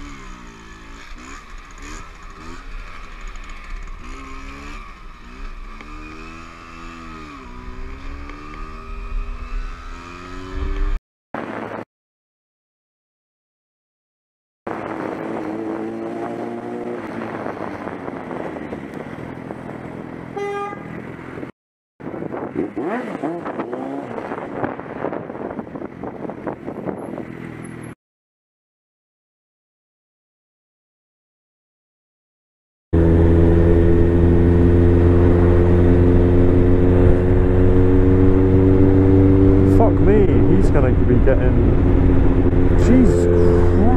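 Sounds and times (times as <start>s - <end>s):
motorcycle engine running: 0.0s - 11.0s, 33.0s - 43.9s
wind and road noise: 0.0s - 11.8s, 14.7s - 28.0s, 33.0s - 43.9s.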